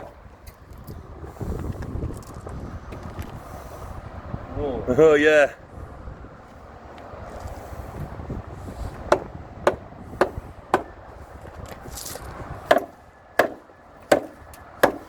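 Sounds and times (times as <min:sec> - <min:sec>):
hammer striking timber: 0:09.0 - 0:11.0, 0:12.7 - 0:15.0.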